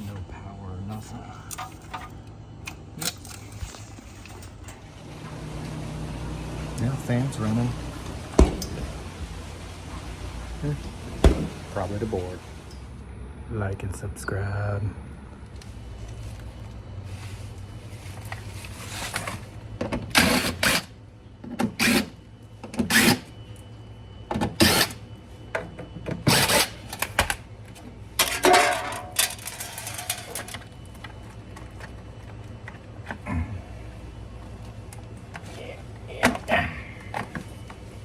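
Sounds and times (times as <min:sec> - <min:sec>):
low steady hum: 0:00.0 - 0:21.4
mechanical clatter and scraping: 0:01.0 - 0:02.2, 0:03.0 - 0:05.8, 0:18.0 - 0:20.9, 0:26.2 - 0:33.3.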